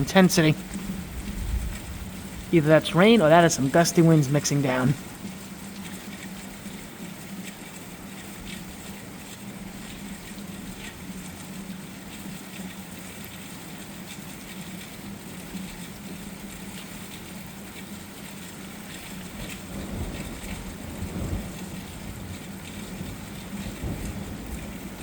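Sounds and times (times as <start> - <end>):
low thunder rumble: 0.0 - 2.8
distant hiss of rain or wind: 0.0 - 25.0.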